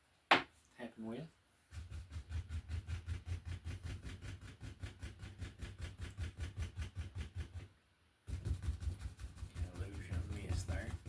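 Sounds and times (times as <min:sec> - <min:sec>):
brush tapping on canvas: 0:08.3 - 0:11.0.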